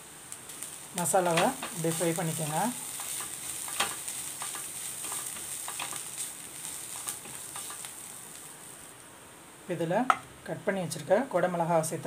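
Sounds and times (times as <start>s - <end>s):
onions sizzling in oil: 0.0s - 12.0s
spatula scraping a pan: 2.9s - 7.9s.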